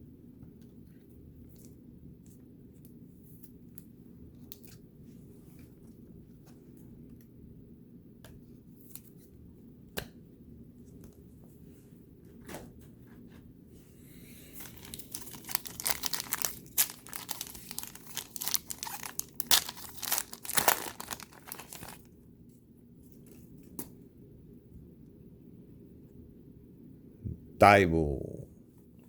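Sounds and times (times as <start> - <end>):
wrapper tearing and crinkling: 14.6 - 22.1.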